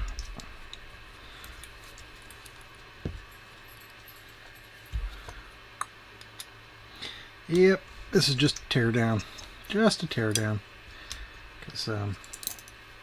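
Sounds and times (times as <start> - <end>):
small parts clicking: 8.5 - 12.8.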